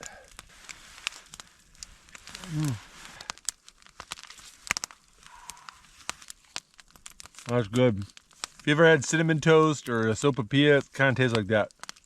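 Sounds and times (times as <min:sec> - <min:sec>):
plastic packaging rustling: 0:00.4 - 0:12.0
person humming low: 0:02.4 - 0:02.9.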